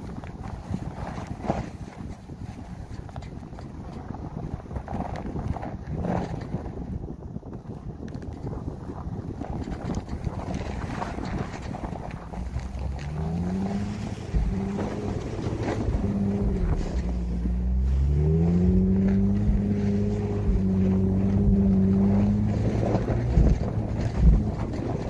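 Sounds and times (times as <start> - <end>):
wind buffeting microphone: 0.0 - 25.0
car engine accelerating: 10.6 - 25.0.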